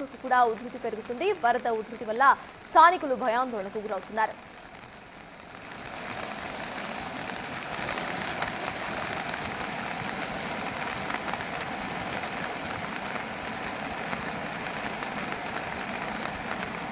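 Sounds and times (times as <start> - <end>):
stream rushing: 4.4 - 16.9.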